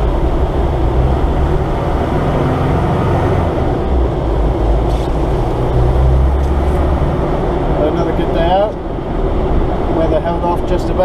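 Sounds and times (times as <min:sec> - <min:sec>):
engine and road rumble inside cab: 0:00.0 - 0:11.0.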